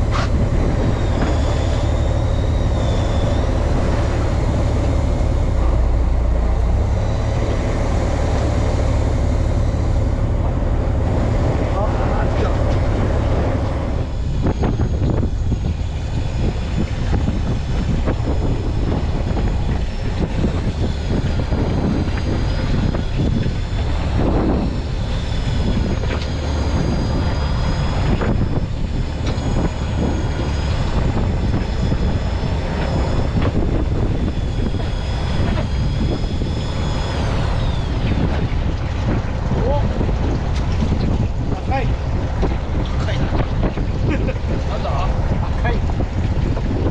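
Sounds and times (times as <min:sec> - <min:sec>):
boat engine running: 0:00.0 - 0:46.9
thin high whine: 0:00.0 - 0:46.9
wind and water noise: 0:00.0 - 0:46.9.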